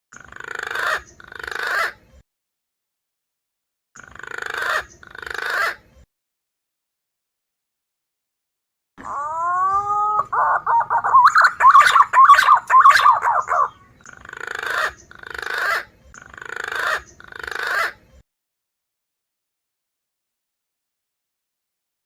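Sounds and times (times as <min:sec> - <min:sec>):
raspy bird notes: 0:09.0 - 0:14.0
pigeon call whistles: 0:09.1 - 0:13.8.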